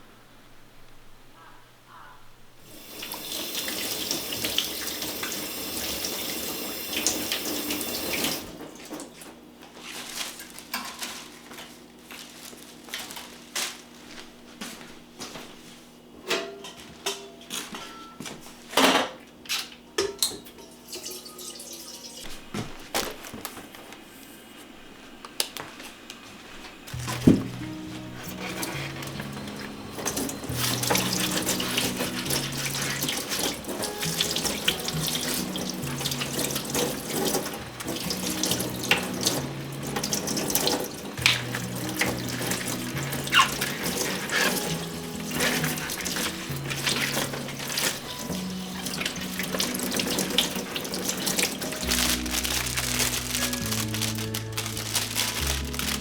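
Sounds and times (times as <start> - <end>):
tap running into sink: 3.0 - 9.1, 27.0 - 51.8
dishes and utensils clattering: 10.4 - 11.4, 16.2 - 19.2, 20.0 - 22.5, 26.9 - 56.0.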